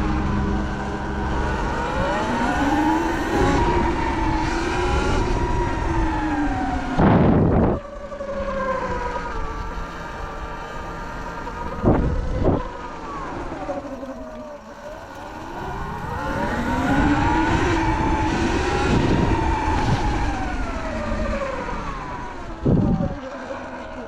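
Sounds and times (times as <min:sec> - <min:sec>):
electric dirt bike motor whining: 0:00.0 - 0:24.0.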